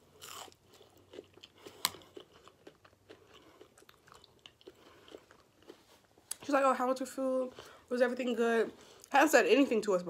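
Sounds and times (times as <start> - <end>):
person chewing bread: 0.0 - 6.5.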